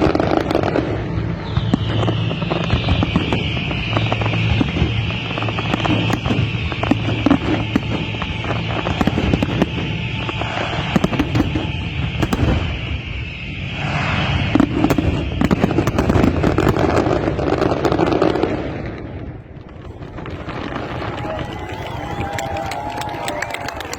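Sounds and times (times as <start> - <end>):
fireworks crackling and banging: 0.0 - 23.9
fireworks hissing: 19.5 - 23.9.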